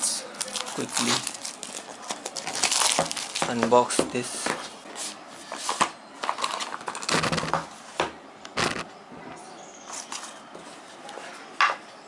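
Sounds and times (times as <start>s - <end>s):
box contents rustling: 0.4s - 3.8s, 5.7s - 7.5s.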